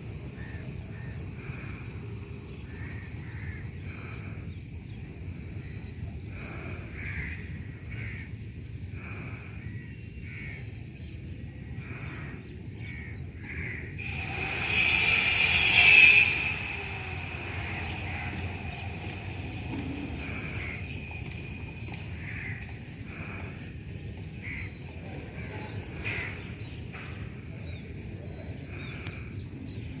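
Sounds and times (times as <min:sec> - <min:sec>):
harsh caw-like bird calls: 0:00.4 - 0:05.0, 0:05.6 - 0:27.2
loud rushing noise: 0:14.0 - 0:23.4.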